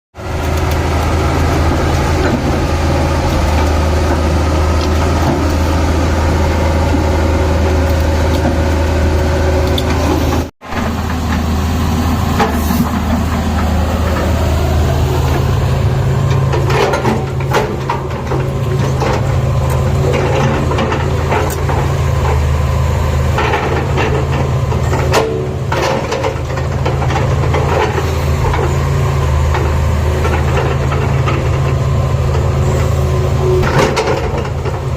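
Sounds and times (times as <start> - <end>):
excavator diesel engine running: 0.2 - 34.9
knocks and clanks: 16.2 - 22.4.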